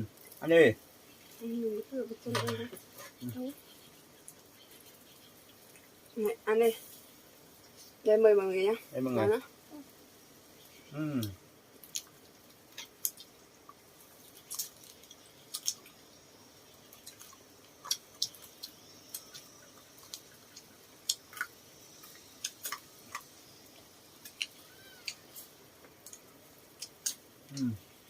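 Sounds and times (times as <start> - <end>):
chewing: 2.8 - 6.2, 10.6 - 27.8.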